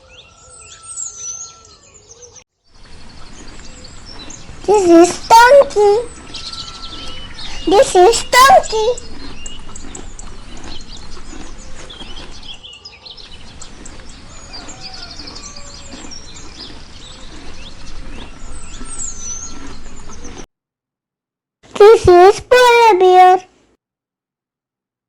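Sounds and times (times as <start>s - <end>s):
small birds chirping: 0.0s - 20.5s.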